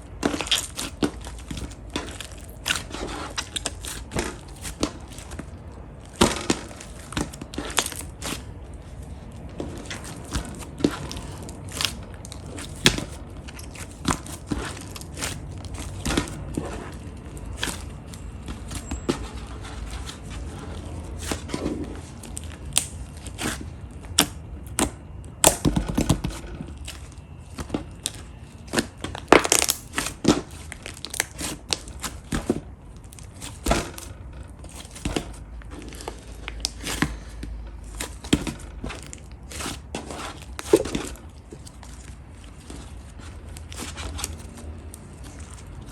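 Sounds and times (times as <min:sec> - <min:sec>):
slime popping and crackling: 0:00.1 - 0:19.3, 0:21.1 - 0:34.1.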